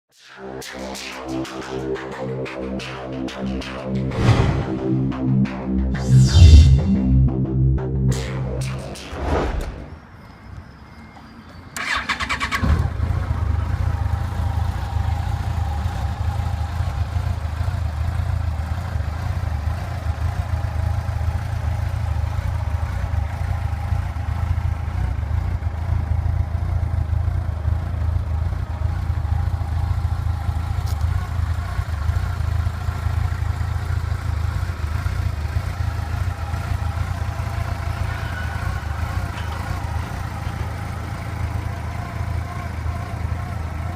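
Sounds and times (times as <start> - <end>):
motorcycle engine idling: 11.8 - 43.9
motorcycle engine starting: 11.8 - 43.9.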